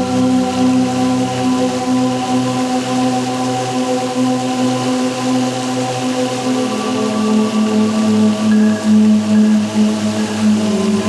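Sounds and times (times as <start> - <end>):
steady rain-like hiss: 0.0 - 11.0
synthesizer pad chords: 5.0 - 11.0.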